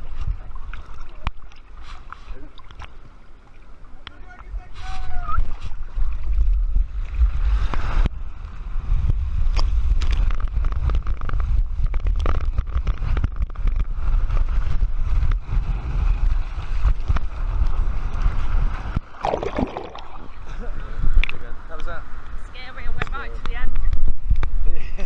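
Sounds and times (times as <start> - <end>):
wind rumble on microphone: 0.0 - 25.0
water rushing and splashing: 16.2 - 20.5.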